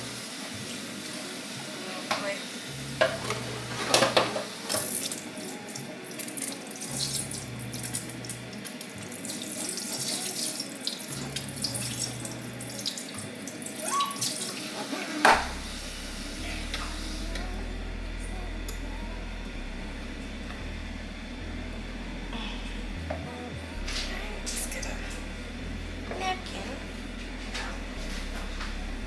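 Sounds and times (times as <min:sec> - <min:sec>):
pan knocking: 0:03.0 - 0:05.0.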